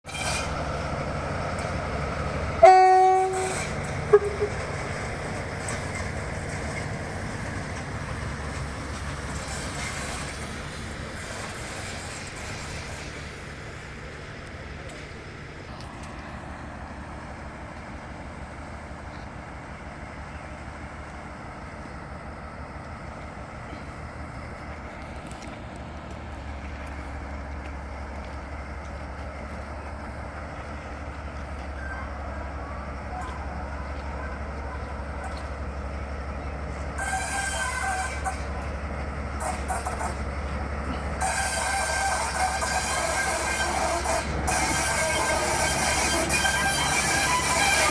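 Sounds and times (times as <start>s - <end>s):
locomotive rumbling: 0.0s - 47.9s
thin steady squeal: 36.9s - 38.6s, 41.2s - 47.9s.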